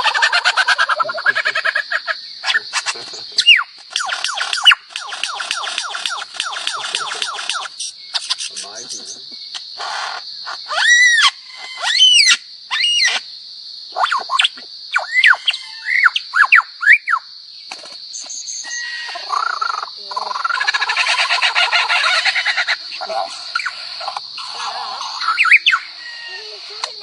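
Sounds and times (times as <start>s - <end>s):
steady high hiss: 0.9s - 16.3s
bird whistling: 3.4s - 9.1s, 10.6s - 13.2s, 14.0s - 17.2s, 23.5s - 27.0s
bird buzzy rattle: 3.8s - 8.8s.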